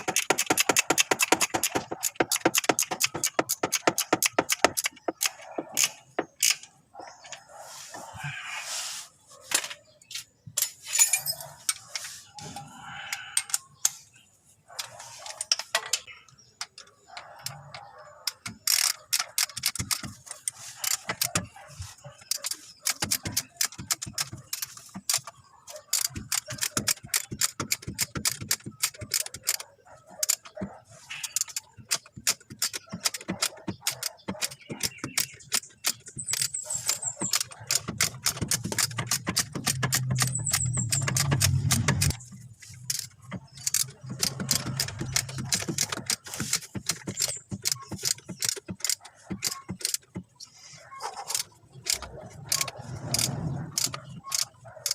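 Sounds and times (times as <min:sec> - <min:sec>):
metallic clicking and clinking of tools: 0:09.5 - 0:12.1, 0:14.8 - 0:21.5, 0:25.9 - 0:50.2, 0:51.3 - 0:54.9.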